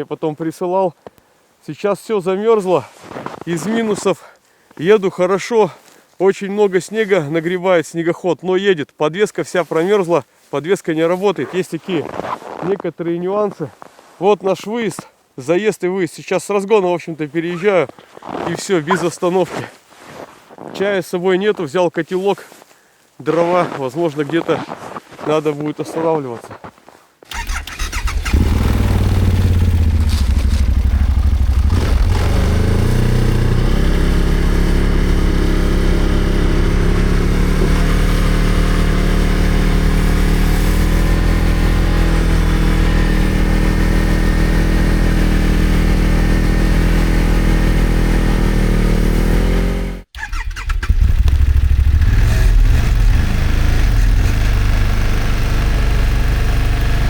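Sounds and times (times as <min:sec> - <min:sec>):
snowmobile engine running: 0:28.0 - 0:50.0, 0:50.9 - 0:57.0.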